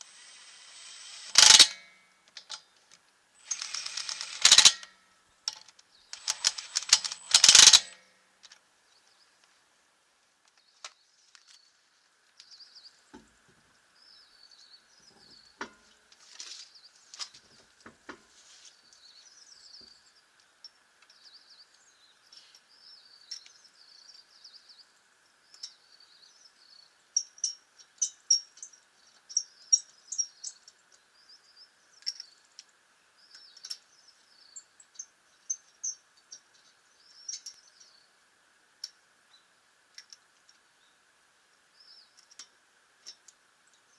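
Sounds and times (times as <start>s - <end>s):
sharp clicks and knocks: 0.1s - 1.8s, 3.5s - 4.9s, 6.2s - 8.0s.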